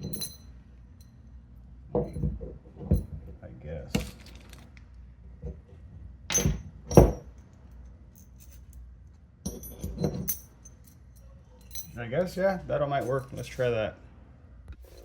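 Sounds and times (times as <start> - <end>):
metal bolts clinking: 0.0 - 1.3, 6.3 - 8.8, 9.4 - 12.0.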